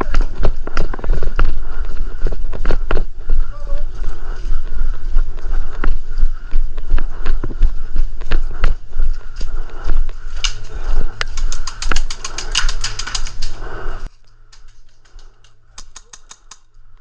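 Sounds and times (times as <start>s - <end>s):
low rumble of movement: 0.0s - 16.2s
airsoft gun clicking shots: 15.8s - 16.6s.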